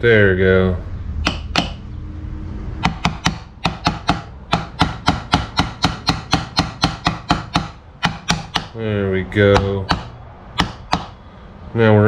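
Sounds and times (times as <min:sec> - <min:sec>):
light rapid hammer taps: 0:01.2 - 0:01.8, 0:02.8 - 0:08.8, 0:09.5 - 0:11.2.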